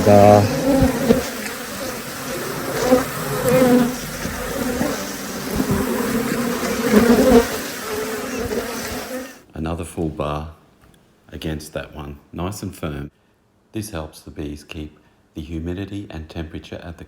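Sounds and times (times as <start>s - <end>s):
honeybees buzzing: 0.0s - 9.4s.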